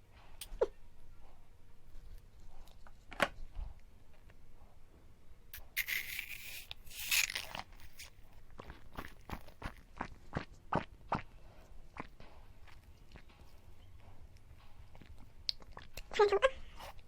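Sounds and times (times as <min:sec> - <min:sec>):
plastic tearing: 0:05.6 - 0:08.2
plastic packaging rustling: 0:05.8 - 0:08.2.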